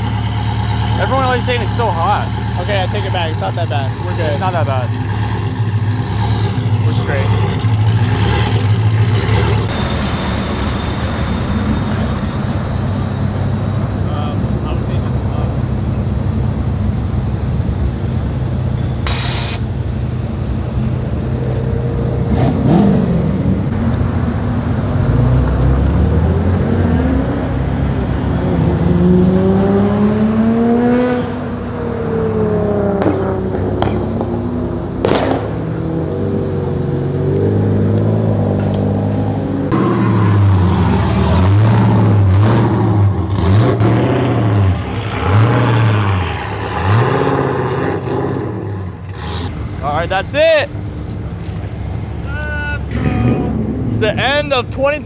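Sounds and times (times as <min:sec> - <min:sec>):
engine revved up and down: 0:00.0 - 0:09.9, 0:22.0 - 0:23.8, 0:24.8 - 0:50.9
car engines revving past: 0:00.0 - 0:54.6
short loud hiss: 0:19.1 - 0:19.7.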